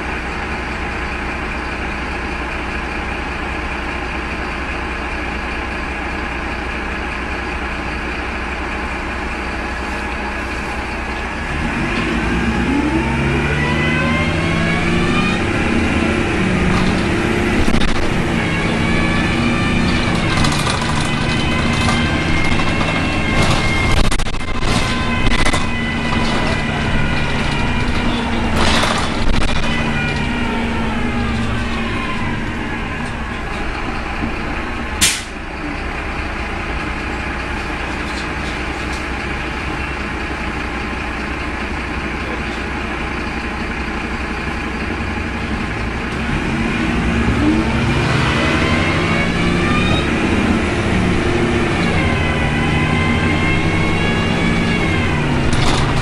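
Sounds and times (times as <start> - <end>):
bus engine running: 0.0 - 56.0
howling whine: 9.5 - 39.5, 45.0 - 56.0.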